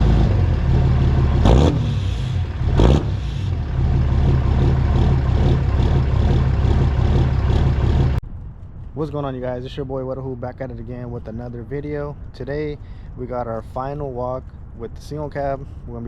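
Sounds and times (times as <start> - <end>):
diesel engine revving: 0.0 - 8.2.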